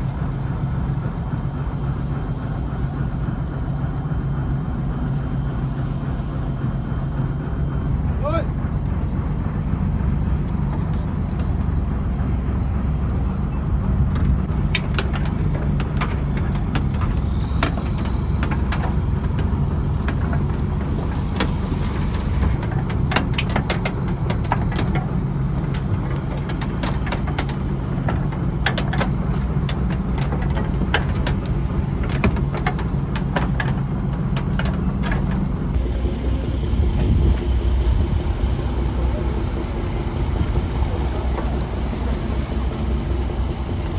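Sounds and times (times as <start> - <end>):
diesel engine running steadily: 0.0 - 43.9
sharp clicks and knocks: 13.9 - 35.8.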